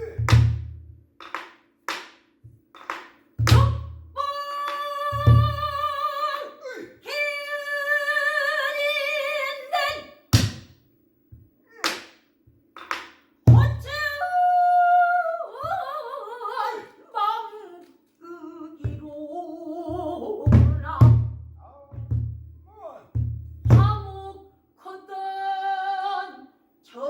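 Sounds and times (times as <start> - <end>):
sharp clacks: 1.2 - 3.6, 11.8 - 13.3
woman singing wavering line: 3.6 - 10.1.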